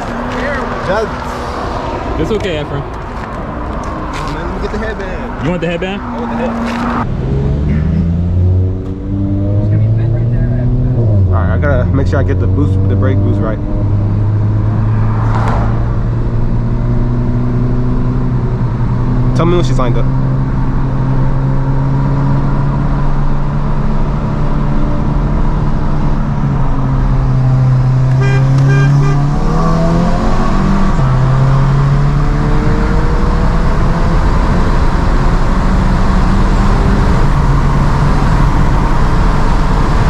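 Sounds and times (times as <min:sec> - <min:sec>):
car engine: 0:00.0 - 0:40.0
road noise: 0:00.0 - 0:40.0
car horn toot: 0:28.1 - 0:30.3.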